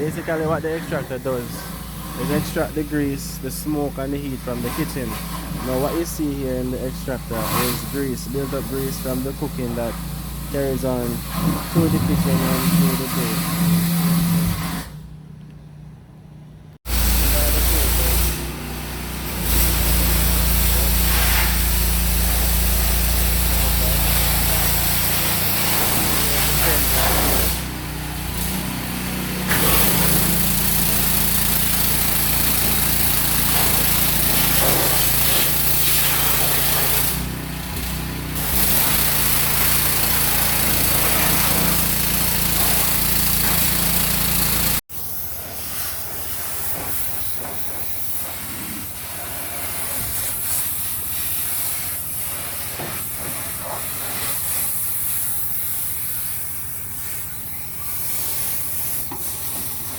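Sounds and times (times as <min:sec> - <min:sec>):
pressure washer spraying hiss: 0:00.0 - 0:15.0, 0:16.9 - 0:59.9
motor hum: 0:00.0 - 0:44.8.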